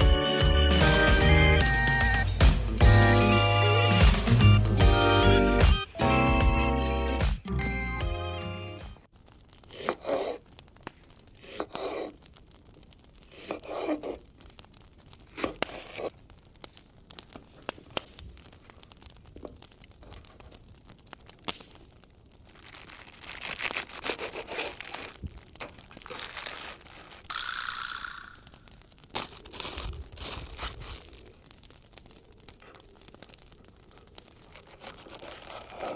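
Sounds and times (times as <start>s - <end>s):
crinkling and tearing: 9.1s - 27.4s, 28.3s - 35.9s.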